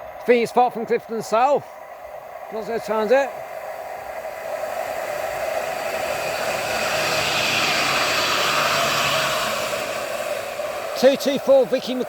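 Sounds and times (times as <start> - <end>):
tram passing: 4.0 - 12.0.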